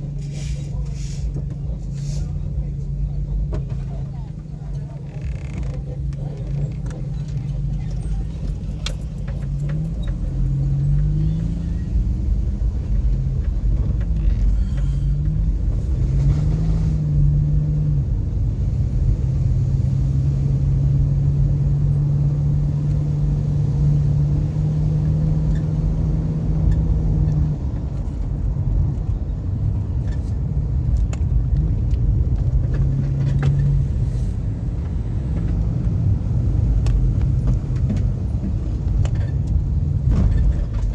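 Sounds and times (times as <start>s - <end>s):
car engine drone: 0.0s - 40.9s
road rumble: 0.0s - 40.9s.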